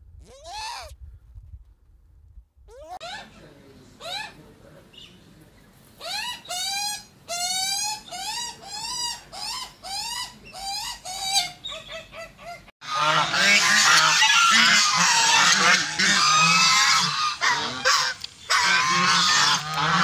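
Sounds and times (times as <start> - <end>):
magpie squeaky calls: 6.0 - 12.6
geese honking: 12.8 - 20.0.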